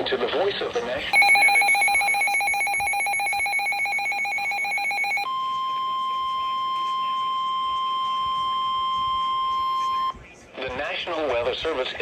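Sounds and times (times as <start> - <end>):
steady high beep: 1.2 - 5.3.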